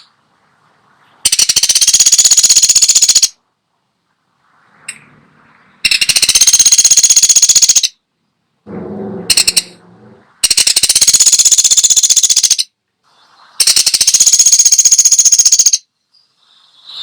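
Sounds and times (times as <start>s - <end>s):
woodpecker rattling calls: 1.3s - 3.4s, 5.8s - 8.0s, 9.3s - 9.8s, 10.4s - 12.7s, 13.6s - 15.9s
sharp bird note: 8.7s - 11.6s.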